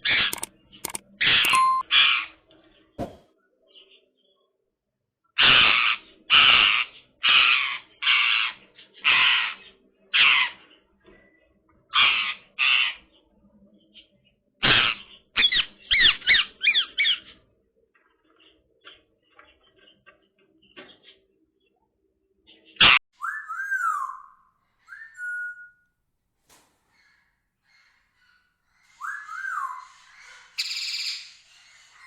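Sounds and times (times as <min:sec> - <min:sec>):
soft clicks: 0:00.3 - 0:01.8
parakeet squawking and screeching: 0:05.4 - 0:09.5, 0:12.0 - 0:12.9, 0:26.9 - 0:32.0
parakeet whistle: 0:29.0 - 0:30.0.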